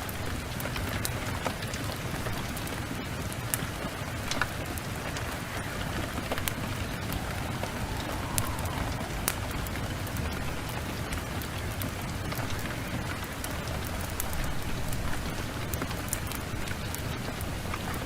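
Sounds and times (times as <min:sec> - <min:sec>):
heavy rain falling: 0:00.0 - 0:18.0
low rumble: 0:04.8 - 0:11.5.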